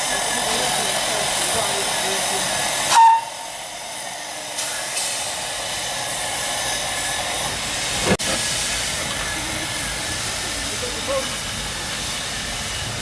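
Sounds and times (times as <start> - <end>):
steam hissing: 0.0 - 13.0.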